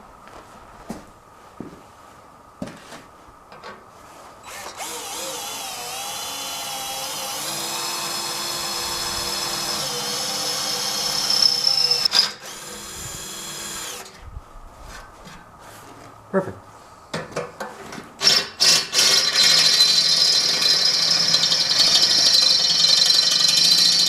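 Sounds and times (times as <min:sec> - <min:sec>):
power drill drilling: 0:04.4 - 0:14.2, 0:18.2 - 0:24.0.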